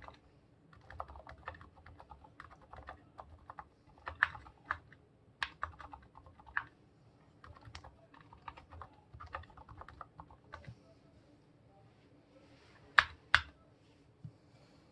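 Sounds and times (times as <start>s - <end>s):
typing on mechanical keyboard: 0.0s - 0.2s, 0.8s - 6.7s, 7.4s - 10.7s.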